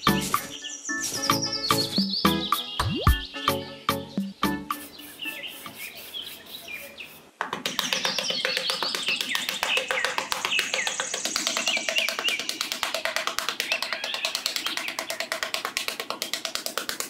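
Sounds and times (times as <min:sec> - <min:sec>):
birds chirping: 0:00.0 - 0:15.3
fast ticking rhythm: 0:07.5 - 0:17.0.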